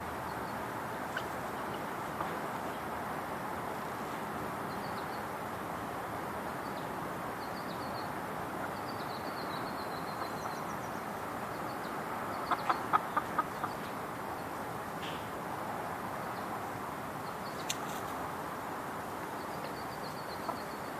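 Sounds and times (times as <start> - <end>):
steady background hiss: 0.0 - 20.9
chickens clucking: 12.3 - 14.0.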